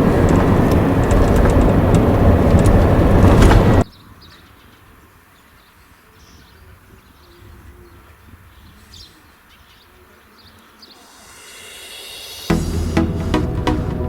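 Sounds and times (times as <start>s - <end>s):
low outdoor rumble: 0.0s - 3.8s
birds chirping: 0.0s - 11.4s.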